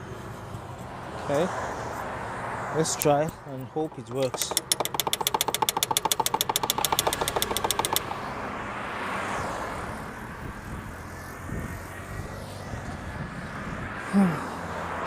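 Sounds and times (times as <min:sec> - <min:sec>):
car engine running: 0:03.7 - 0:08.5
starter rapid clicking: 0:03.8 - 0:08.3.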